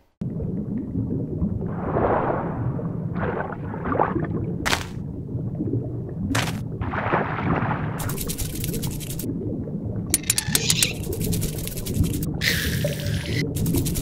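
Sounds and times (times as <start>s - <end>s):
low underwater rumble: 0.2s - 10.1s
bubbling and swishing: 0.2s - 14.0s.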